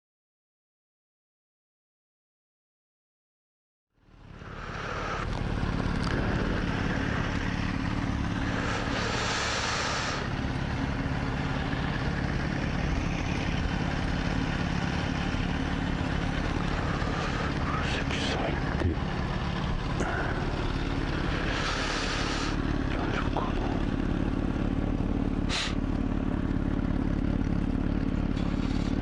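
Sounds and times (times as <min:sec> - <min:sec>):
motorcycle engine running: 0:04.0 - 0:29.0
rush of hiss: 0:08.6 - 0:10.3, 0:21.4 - 0:22.6, 0:25.5 - 0:25.8.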